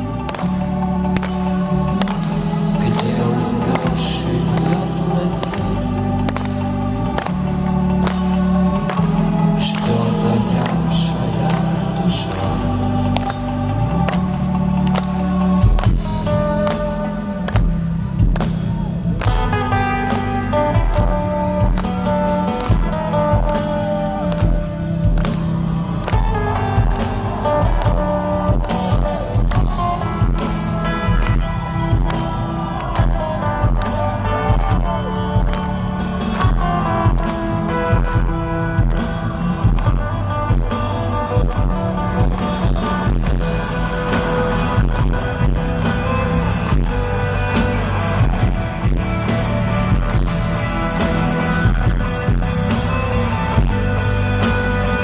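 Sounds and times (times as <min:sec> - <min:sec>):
bass guitar: 0:00.0 - 0:55.0
steady drum beat: 0:20.8 - 0:55.0.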